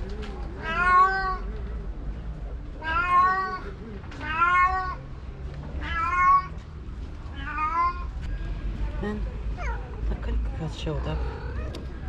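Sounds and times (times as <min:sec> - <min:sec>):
cat meowing: 0:00.6 - 0:01.5, 0:02.8 - 0:05.0, 0:05.8 - 0:06.6, 0:07.3 - 0:08.2.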